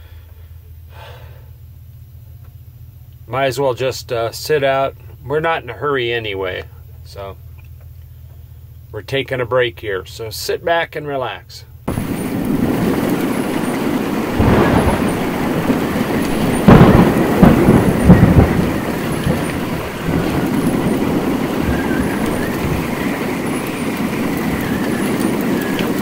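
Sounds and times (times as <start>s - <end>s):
gusting wind: 11.9s - 26.0s
heavy rain: 11.9s - 26.0s.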